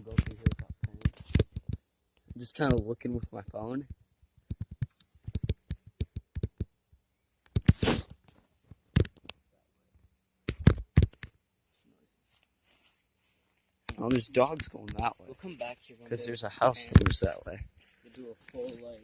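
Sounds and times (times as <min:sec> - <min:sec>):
footsteps through dry brush: 0:11.6 - 0:19.0
branches and leaves rustling: 0:11.7 - 0:19.0.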